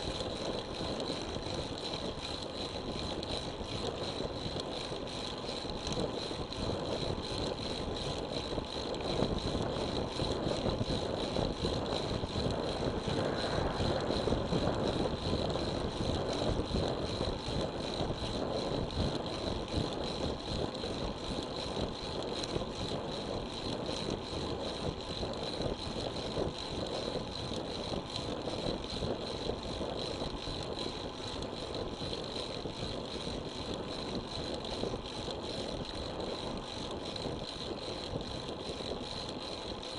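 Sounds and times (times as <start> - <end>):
wind rush on microphone: 0.0 - 39.9
tyre-on-road noise: 10.8 - 18.0.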